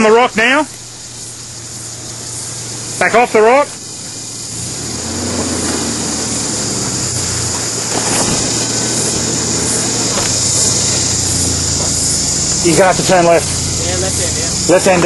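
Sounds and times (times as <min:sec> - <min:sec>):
vehicle engine running at low revs: 0:00.0 - 0:15.0.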